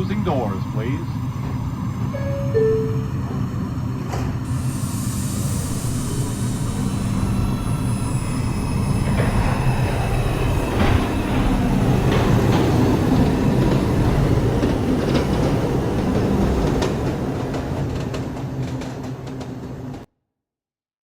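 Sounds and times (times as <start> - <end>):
low train rumble: 0.0 - 20.1
subway train propulsion humming: 0.0 - 20.1
wheels clicking over rail joints: 9.0 - 20.0.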